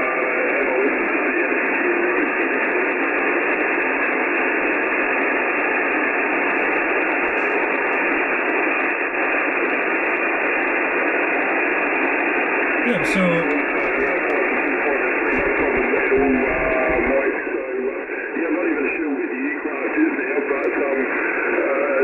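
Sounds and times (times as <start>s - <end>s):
weak wavering voice: 12.8s - 14.2s.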